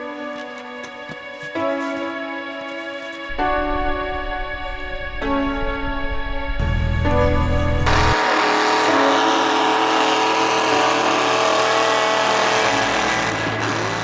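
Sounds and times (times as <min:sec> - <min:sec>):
truck engine at high revs: 0:07.0 - 0:14.0.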